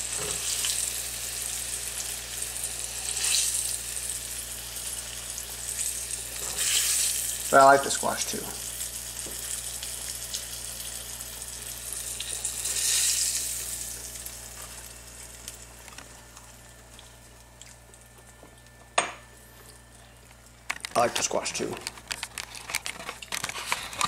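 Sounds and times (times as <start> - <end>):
zucchini frying in oil: 0.0 - 18.8.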